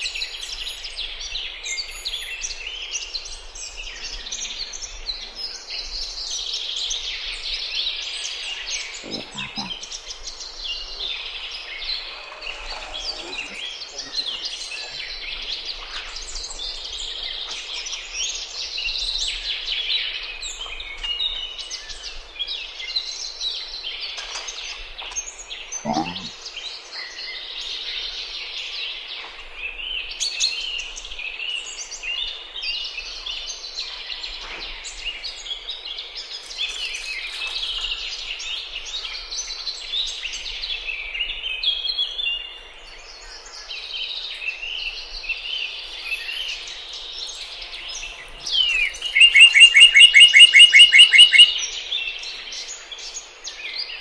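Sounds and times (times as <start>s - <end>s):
birds chirping and singing: 0.0s - 54.0s.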